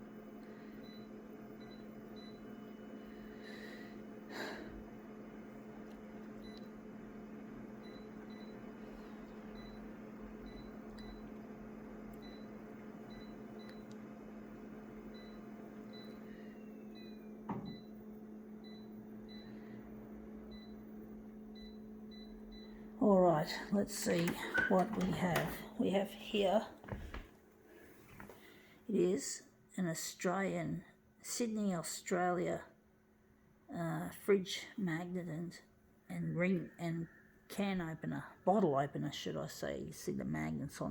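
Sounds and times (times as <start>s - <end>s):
photocopier humming: 0.0s - 28.8s.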